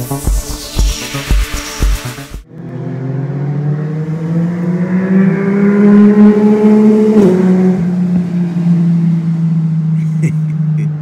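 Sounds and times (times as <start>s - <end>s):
motorcycle engine accelerating: 2.3s - 11.0s.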